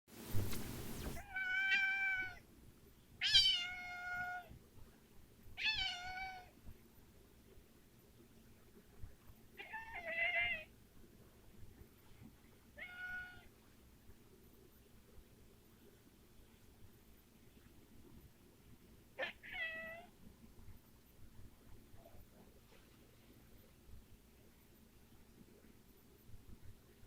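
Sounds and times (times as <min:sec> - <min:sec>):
cat meowing: 0:01.2 - 0:02.4, 0:03.2 - 0:04.5, 0:05.6 - 0:06.5, 0:09.6 - 0:10.7, 0:12.8 - 0:13.5, 0:19.2 - 0:20.1.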